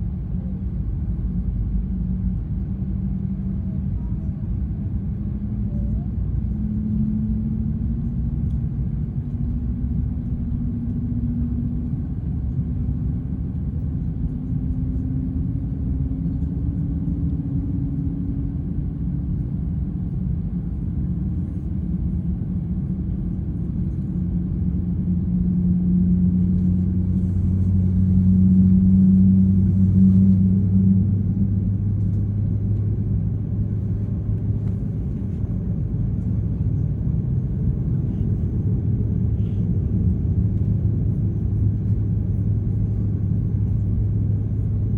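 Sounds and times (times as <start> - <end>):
rising engine whine: 22.4 - 44.9.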